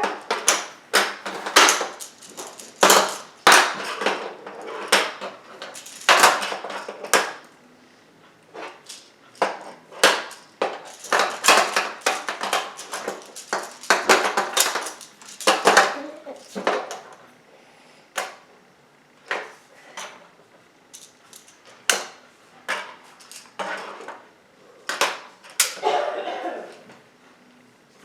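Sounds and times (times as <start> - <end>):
plastic tiles clacking together: 0.1 - 7.4, 8.6 - 17.0, 20.9 - 22.1.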